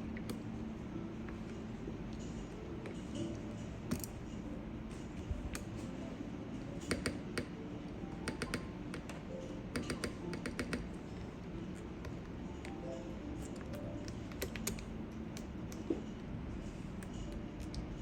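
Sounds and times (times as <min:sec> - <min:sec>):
keycaps clicking onto switches: 0:13.4 - 0:15.9.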